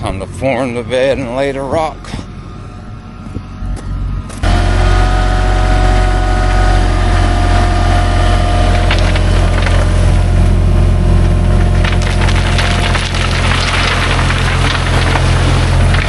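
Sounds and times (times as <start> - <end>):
machine engine running: 0.0 - 16.0
steady whine: 0.0 - 16.0
rock clattering: 8.7 - 10.1, 11.5 - 16.0.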